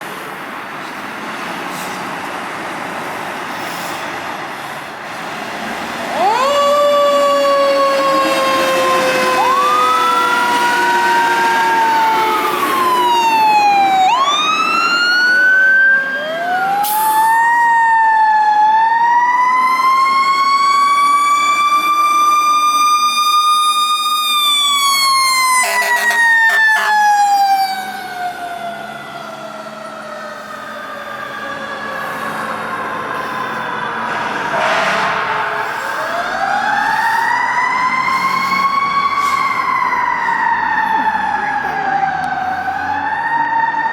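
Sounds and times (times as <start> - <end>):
fire truck sirens wailing: 2.5 - 43.9
short horn blasts: 25.5 - 27.0.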